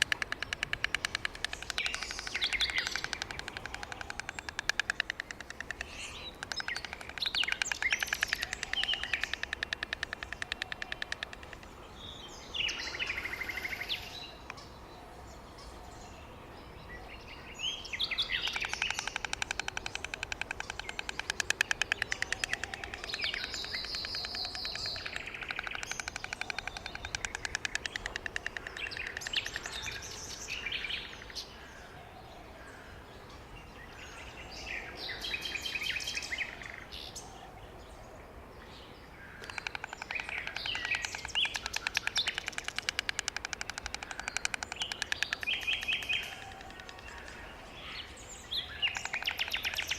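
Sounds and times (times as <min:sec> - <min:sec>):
small birds chirping: 0:00.0 - 0:31.9, 0:39.3 - 0:49.9.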